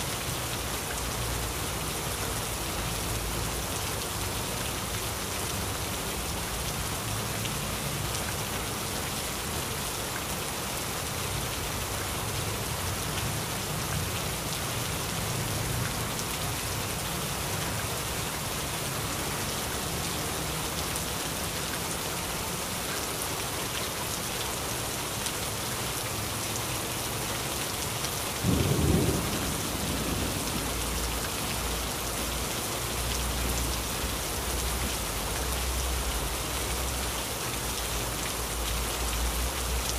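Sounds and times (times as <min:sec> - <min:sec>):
heavy rain falling: 0:00.0 - 0:39.9
loud thunderclap: 0:28.4 - 0:31.0
thunder rumbling: 0:28.4 - 0:31.2.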